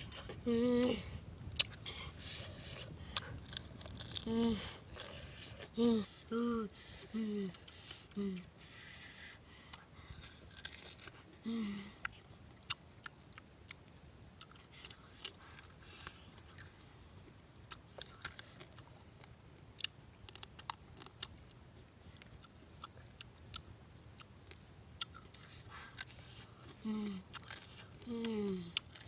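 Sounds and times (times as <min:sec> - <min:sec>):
sharp crackles of food: 0:00.1 - 0:05.8, 0:09.6 - 0:16.9, 0:17.6 - 0:29.0
person chewing: 0:01.6 - 0:05.7, 0:09.7 - 0:11.2, 0:14.4 - 0:16.7, 0:17.7 - 0:21.6, 0:22.2 - 0:29.0.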